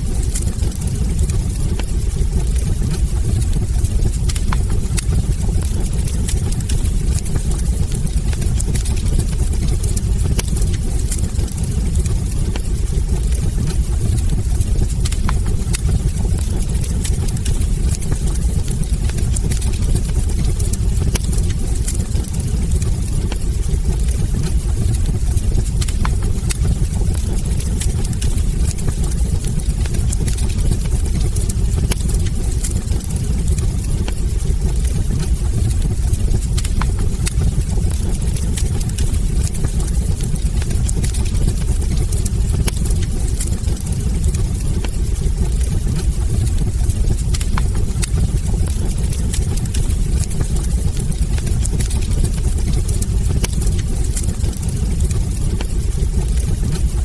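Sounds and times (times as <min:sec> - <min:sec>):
burning logs crackling and popping: 0:00.0 - 0:57.0
fire flames roaring: 0:00.0 - 0:57.0.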